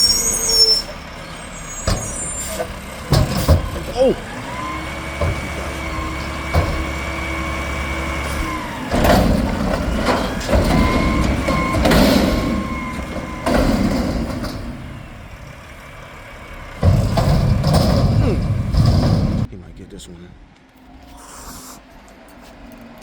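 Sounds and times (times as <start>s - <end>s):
truck engine: 0.0s - 19.6s
metal bangs and clanks: 1.8s - 19.5s.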